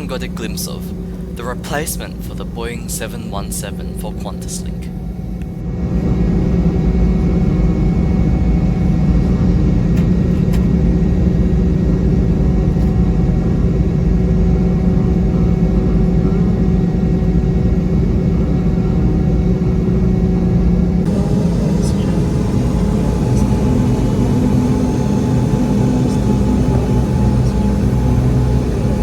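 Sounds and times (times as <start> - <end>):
jet engines droning in cabin: 0.0 - 29.0
thin whining tones: 21.1 - 29.0.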